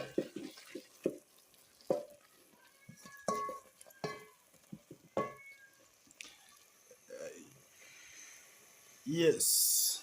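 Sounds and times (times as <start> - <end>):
metal spoon knocking on pot: 3.0 - 5.4.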